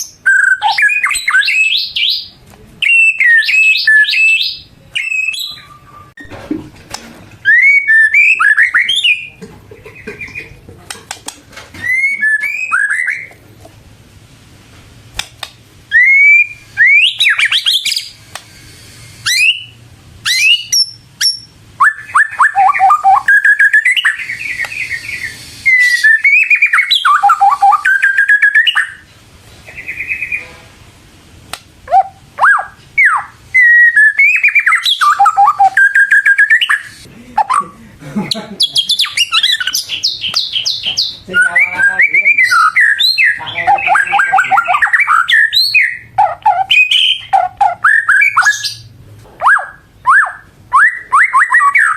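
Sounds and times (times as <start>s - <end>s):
bird singing whistled phrases: 0.0s - 6.2s, 7.4s - 9.4s, 11.8s - 13.3s, 15.9s - 18.2s, 18.8s - 29.0s, 31.9s - 37.6s, 38.6s - 48.8s, 49.4s - 51.9s.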